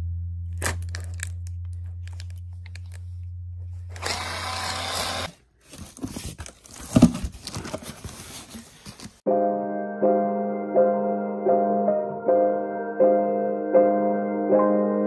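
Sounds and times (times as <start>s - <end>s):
small power tool humming: 3.9s - 5.3s.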